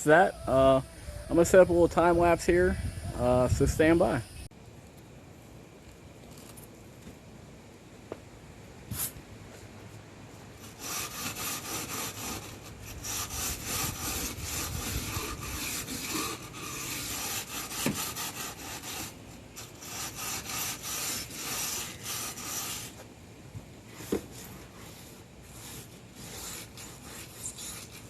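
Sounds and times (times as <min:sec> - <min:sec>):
wire brush scrubbing metal: 0:10.6 - 0:23.0, 0:23.9 - 0:28.0.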